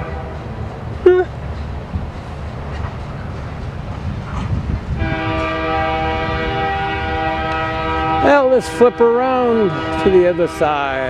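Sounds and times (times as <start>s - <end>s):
locomotive air horn chord: 0.0s - 0.5s, 5.0s - 10.8s
train rumbling: 0.0s - 11.0s.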